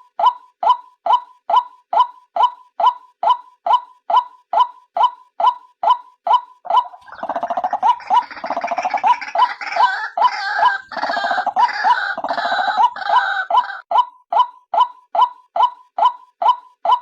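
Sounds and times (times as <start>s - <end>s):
harsh rapid chattering chorus: 6.7s - 13.8s.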